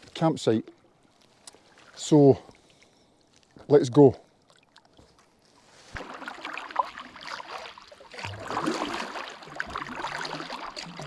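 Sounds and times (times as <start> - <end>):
water moving against hull: 0.0 - 11.0
paddle strokes splashing: 4.4 - 11.0.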